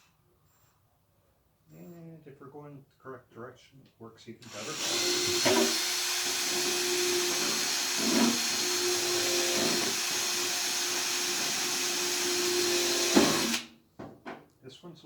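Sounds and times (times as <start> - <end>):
electric drill drilling metal: 4.4 - 13.7.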